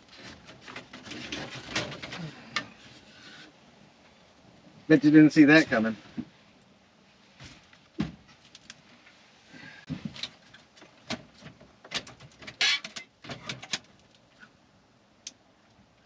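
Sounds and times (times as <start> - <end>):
plastic parts clicking and scraping: 10.1 - 14.2.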